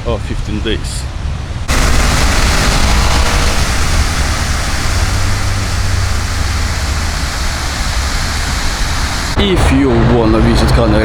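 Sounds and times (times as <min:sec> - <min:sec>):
loud rushing noise with low rumble: 0:01.1 - 0:11.0.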